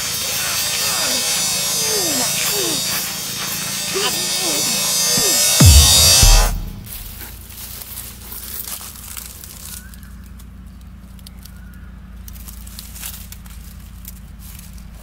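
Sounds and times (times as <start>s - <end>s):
dry leaves crackling and rustling: 7.2s - 15.0s.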